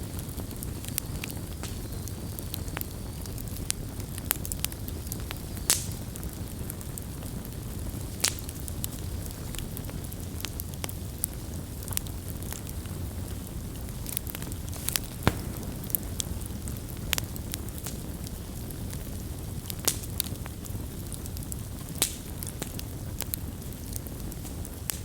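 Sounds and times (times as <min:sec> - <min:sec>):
campfire low rumble: 0:00.0 - 0:25.0
fire crackles and snaps: 0:00.0 - 0:25.0.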